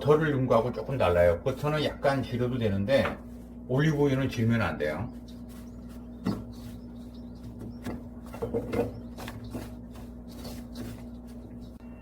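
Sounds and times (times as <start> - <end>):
steady low hum: 0.0 - 12.0
hands crumbling dough in a bowl: 2.8 - 11.8.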